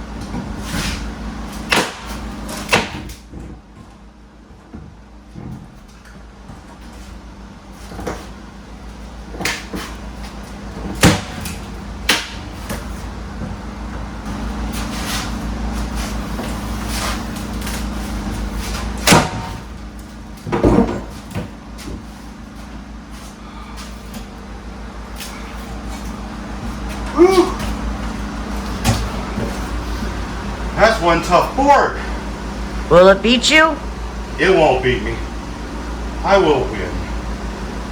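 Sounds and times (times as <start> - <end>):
sharp knocks and cracks: 1.6 - 3.6, 10.8 - 12.9.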